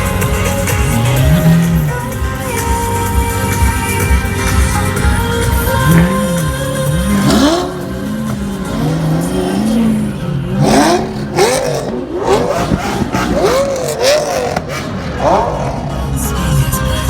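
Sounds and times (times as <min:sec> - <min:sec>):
sports car engines revving: 0:00.0 - 0:17.0.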